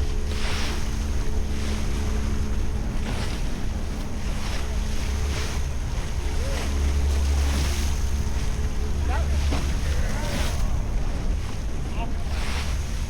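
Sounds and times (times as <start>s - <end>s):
faint steady hum: 0.0s - 13.0s
waves washing and splashing: 0.0s - 13.0s
wind buffeting microphone: 0.0s - 13.0s.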